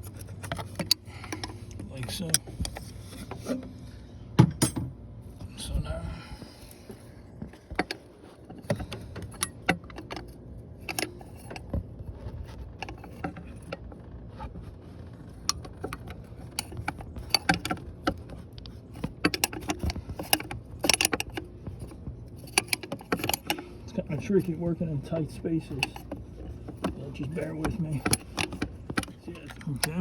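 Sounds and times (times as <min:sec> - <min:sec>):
wrench and metal tube clinking: 0:18.9 - 0:21.5, 0:22.4 - 0:30.0.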